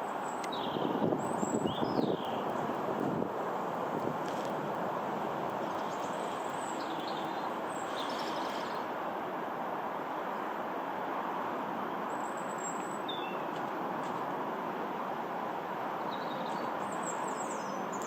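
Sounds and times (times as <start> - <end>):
distant jet aircraft roar: 0.0 - 18.0
bird chirps: 5.8 - 8.8, 12.1 - 13.4.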